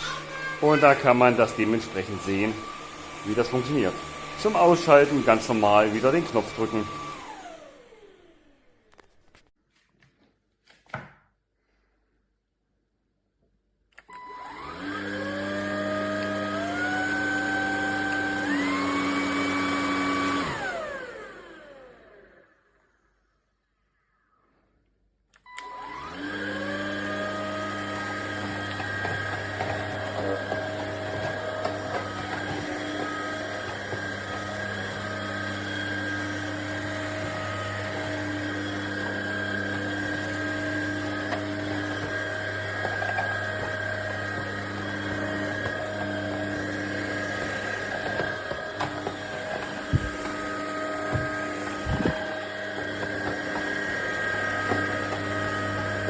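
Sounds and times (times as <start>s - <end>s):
vacuum motor whining: 0.0s - 9.5s, 14.0s - 22.6s, 25.4s - 56.0s.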